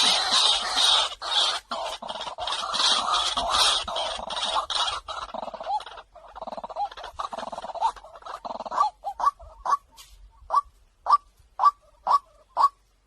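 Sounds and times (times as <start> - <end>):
waterhen calls: 0.0 - 13.0.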